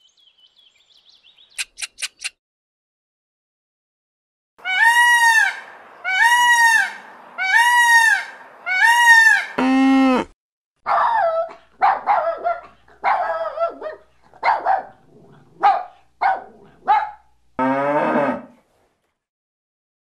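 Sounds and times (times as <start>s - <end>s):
peacock calling: 4.6s - 10.3s
puppy barking and yapping: 10.9s - 17.3s.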